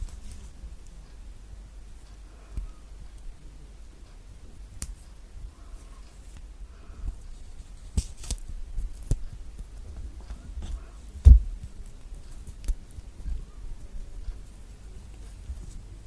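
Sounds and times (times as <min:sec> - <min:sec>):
heavy thump: 0:10.6 - 0:11.6.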